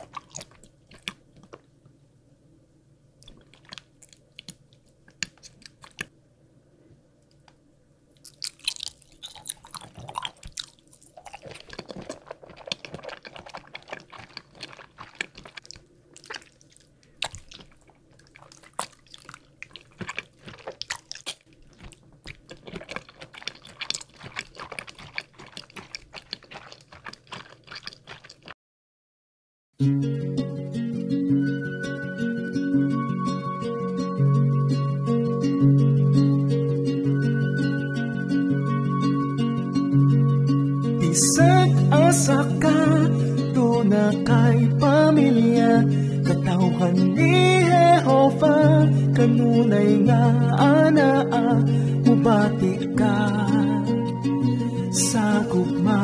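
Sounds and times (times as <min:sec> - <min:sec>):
person chewing gummy candy: 0:00.0 - 0:01.6, 0:03.2 - 0:06.1, 0:08.2 - 0:28.6
wet mouth clicks and smacks: 0:00.0 - 0:01.6, 0:08.2 - 0:28.6.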